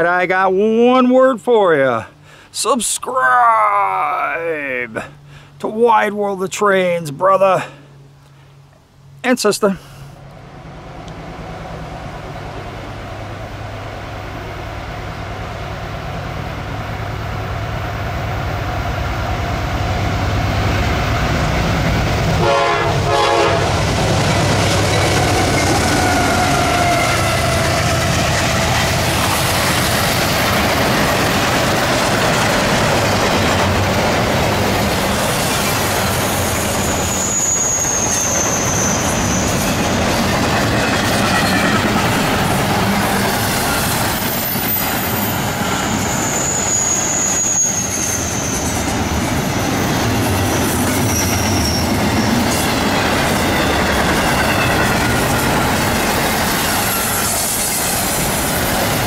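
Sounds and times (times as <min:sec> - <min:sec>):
diesel locomotive rumble: 0:09.8 - 0:59.0
train horn blast: 0:22.4 - 0:23.9
train wheel clatter: 0:23.8 - 0:59.0
high wheel squeal: 0:24.9 - 0:28.0, 0:35.2 - 0:41.9, 0:43.4 - 0:50.0, 0:50.6 - 0:55.8, 0:56.4 - 0:58.2.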